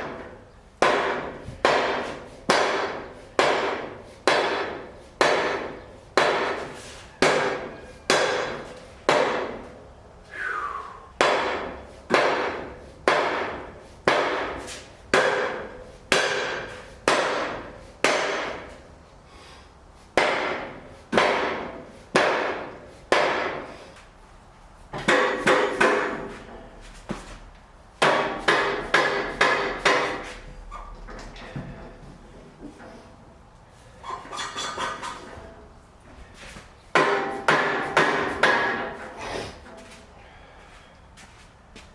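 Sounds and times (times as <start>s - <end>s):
hammer striking metal: 0.0s - 9.6s, 11.2s - 18.7s, 20.2s - 23.7s, 25.0s - 26.6s, 28.0s - 30.3s, 36.9s - 39.1s.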